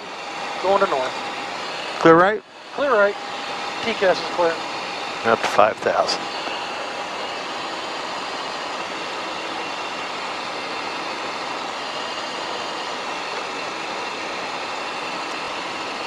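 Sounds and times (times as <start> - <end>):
faint steady whine: 0.0 - 16.0
jet engine noise: 0.0 - 16.0.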